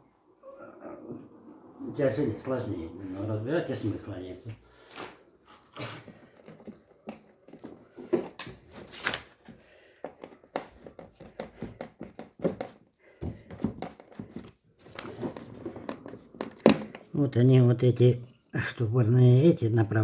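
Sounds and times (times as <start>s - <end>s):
parts handled clicks and knocks: 13.5s - 17.1s.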